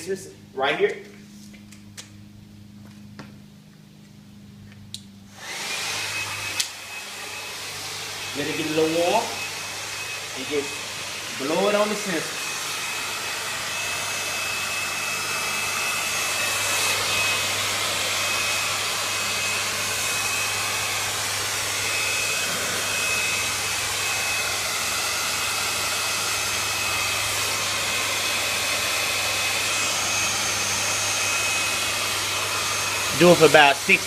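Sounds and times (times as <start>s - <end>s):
hair dryer running: 4.4s - 34.0s.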